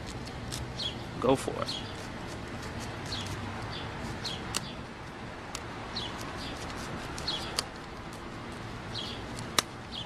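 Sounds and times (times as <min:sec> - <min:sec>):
small birds chirping: 0:00.5 - 0:05.0, 0:05.8 - 0:10.0
sharp clicks: 0:04.5 - 0:04.7, 0:07.2 - 0:08.2.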